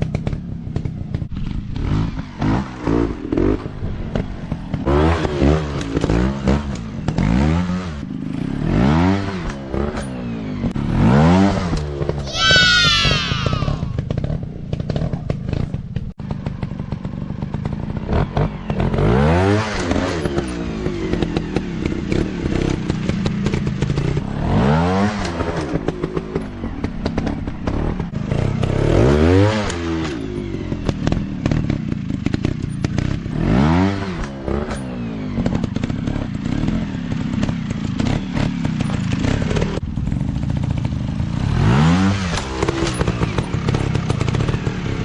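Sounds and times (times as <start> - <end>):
dirt bike engines revving: 12.3 - 14.2.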